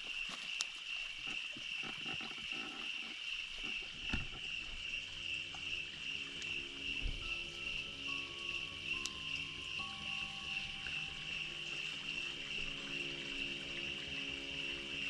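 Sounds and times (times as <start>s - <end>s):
faint clicks and rustles: 0.0s - 4.9s
crickets chirring: 0.0s - 15.0s
low steady drone: 4.4s - 15.0s.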